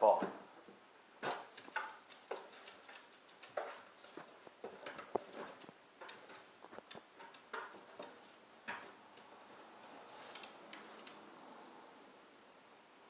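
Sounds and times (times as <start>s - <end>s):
dog clawing and chewing cardboard: 1.2s - 11.2s.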